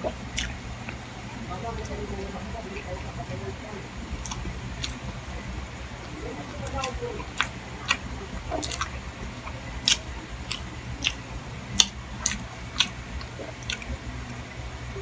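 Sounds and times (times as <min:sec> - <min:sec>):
person chewing with wet mouth smacks: 0:00.0 - 0:01.0, 0:04.1 - 0:05.5, 0:06.4 - 0:11.2, 0:11.8 - 0:14.5
steady low hum: 0:00.0 - 0:15.0.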